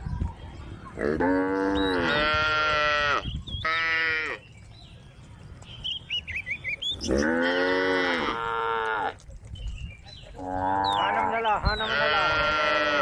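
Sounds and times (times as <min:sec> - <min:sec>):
cow mooing: 0:01.0 - 0:03.2, 0:07.1 - 0:09.2, 0:10.4 - 0:13.0.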